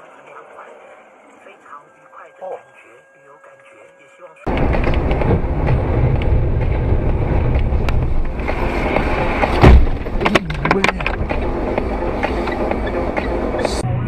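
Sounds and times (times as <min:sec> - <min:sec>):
car road and engine noise: 0:04.4 - 0:14.0
sudden loud bang: 0:04.5 - 0:11.3.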